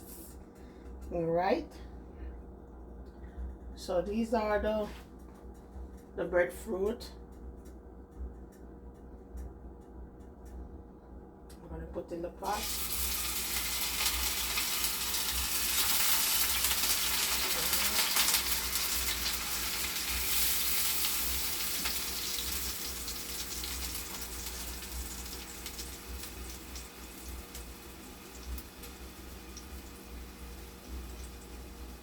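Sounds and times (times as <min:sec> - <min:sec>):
slices sizzling in hot oil: 0:12.4 - 0:32.0.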